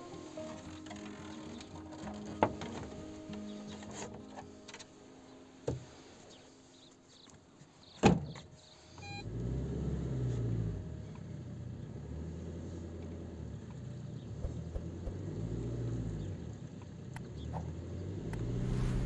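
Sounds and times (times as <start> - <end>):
car engine starting and idling: 9.0 - 19.0.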